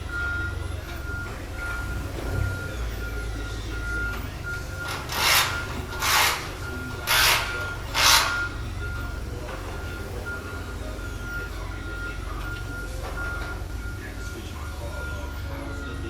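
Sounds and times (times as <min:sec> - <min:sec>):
rasping scraping strokes: 0:04.7 - 0:08.6.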